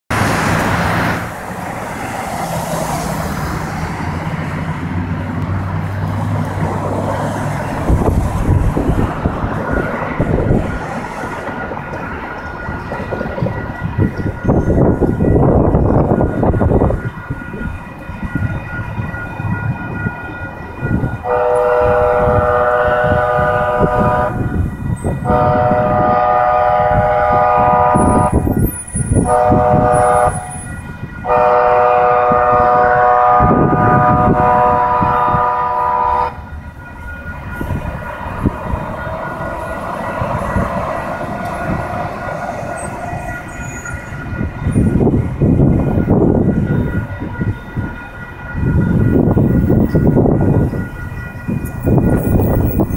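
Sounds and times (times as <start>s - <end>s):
train rumbling on rails: 0.1s - 52.9s
train horn: 21.1s - 52.9s.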